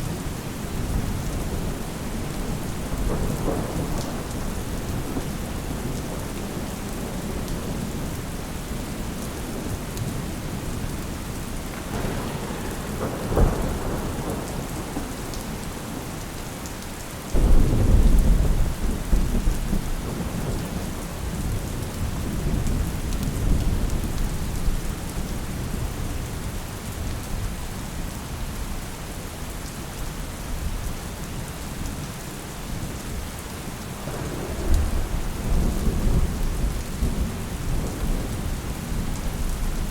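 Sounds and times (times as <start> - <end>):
steady rain: 0.0 - 39.9
rolling thunder rumble: 0.1 - 16.2, 17.4 - 26.4, 34.0 - 39.9
thunder crack: 11.7 - 15.8, 17.4 - 20.5.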